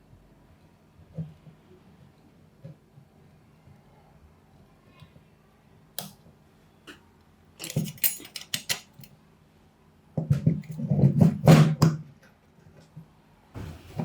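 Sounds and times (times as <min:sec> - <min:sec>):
metal parts clinking and knocking: 0:07.6 - 0:09.1.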